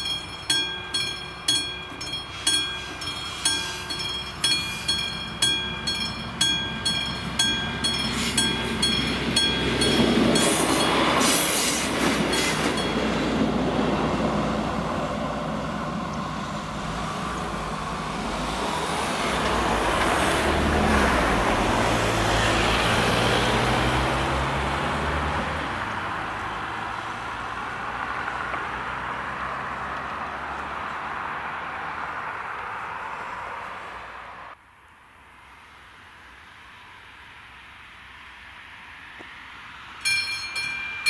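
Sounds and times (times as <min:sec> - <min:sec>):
level crossing warning bell: 0:00.0 - 0:13.6, 0:40.0 - 0:41.0
train rail clatter: 0:00.0 - 0:15.0, 0:18.3 - 0:23.4, 0:40.0 - 0:41.0
diesel train engine drone: 0:00.0 - 0:31.0, 0:34.4 - 0:41.0.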